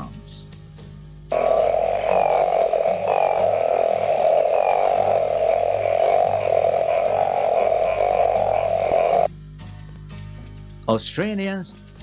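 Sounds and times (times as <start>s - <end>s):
frog calling: 1.2s - 9.3s.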